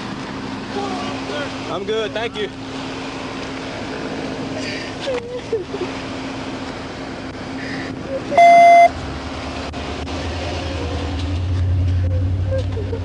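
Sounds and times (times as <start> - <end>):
deep vehicle rumble: 0.0 - 13.0
low engine hum: 0.0 - 13.0
loud electronic beep: 8.4 - 8.9.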